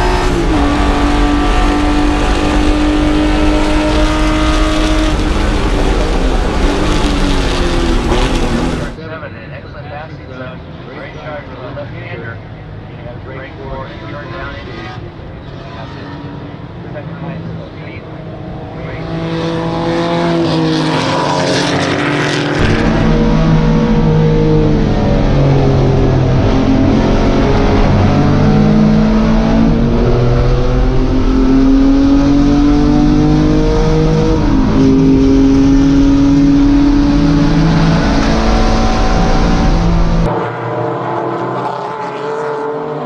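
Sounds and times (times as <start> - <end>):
race car engine revving: 0.0 - 9.0, 13.1 - 43.0
heavy low rumble: 0.0 - 9.1, 22.6 - 32.2.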